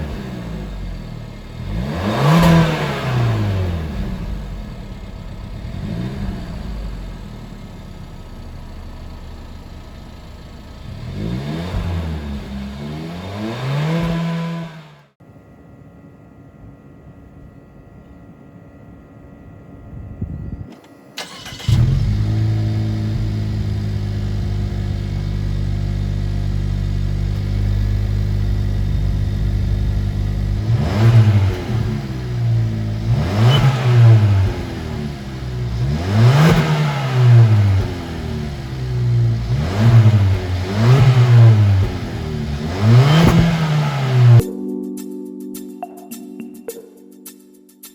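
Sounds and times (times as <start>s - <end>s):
engine revving: 0.0s - 15.2s, 21.2s - 44.4s
car engine starting and idling: 0.0s - 20.0s, 20.7s - 44.4s.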